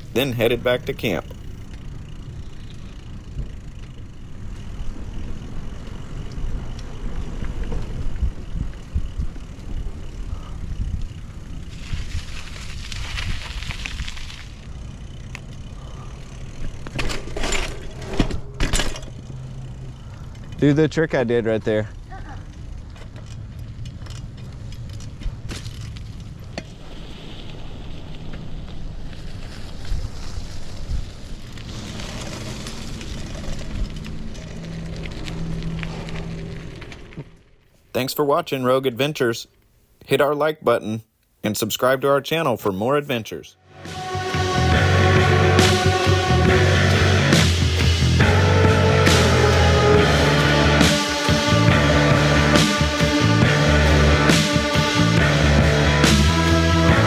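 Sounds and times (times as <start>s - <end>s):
bicycle clicks and rattles: 0.0s - 37.6s
bicycle tyres rumbling on trail: 0.0s - 37.7s, 44.2s - 54.3s
steady low hum: 43.7s - 57.0s.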